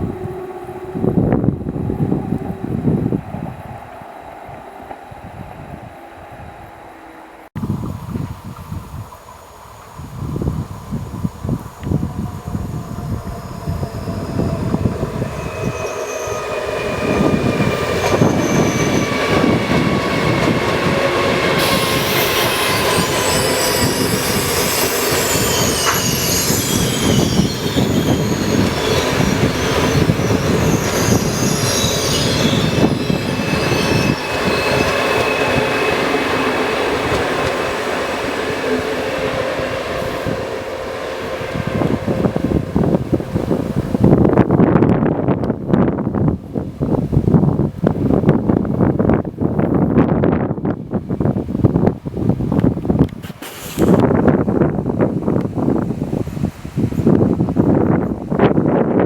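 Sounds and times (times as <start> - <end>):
train wheels rumbling on rail: 0.0 - 59.0
thin whining tones: 11.2 - 44.9
high-pitched wheel squeals: 11.8 - 44.5.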